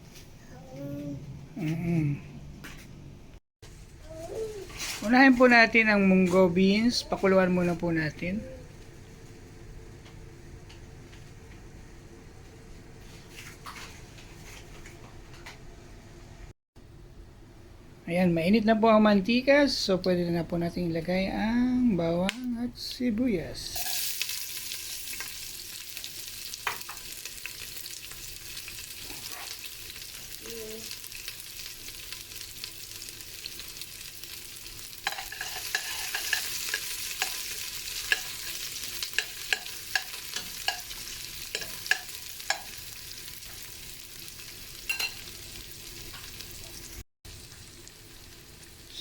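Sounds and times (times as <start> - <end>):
garlic and onion sizzling in oil: 23.8 - 49.0.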